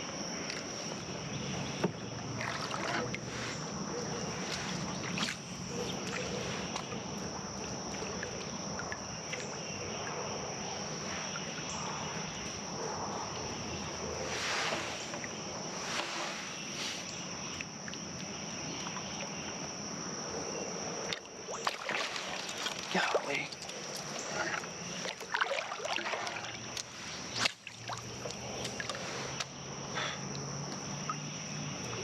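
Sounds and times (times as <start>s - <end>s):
water splashing: 0.4s - 9.7s, 13.9s - 19.3s, 21.2s - 29.6s.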